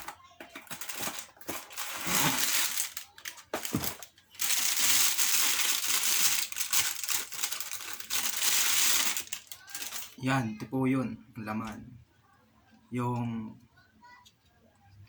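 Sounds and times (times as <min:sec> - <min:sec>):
packaging rustling: 0:00.0 - 0:10.2.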